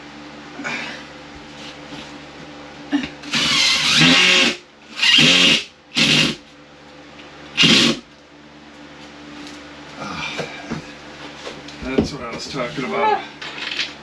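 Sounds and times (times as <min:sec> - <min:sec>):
power drill driving screws: 0:03.3 - 0:06.4, 0:07.6 - 0:08.0.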